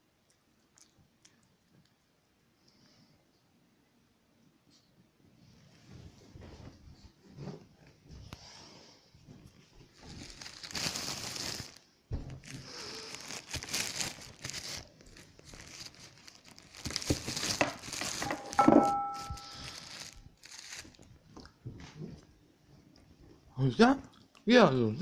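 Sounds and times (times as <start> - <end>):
plastic wrapping crinkling: 9.8 - 21.2.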